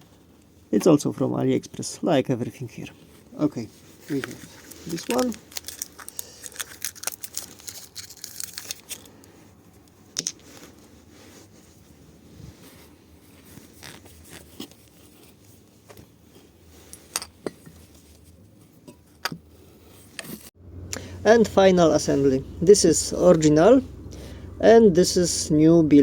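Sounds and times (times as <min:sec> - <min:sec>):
packaging crinkling: 0:04.1 - 0:09.2
small parts knocking and tapping: 0:10.2 - 0:10.5.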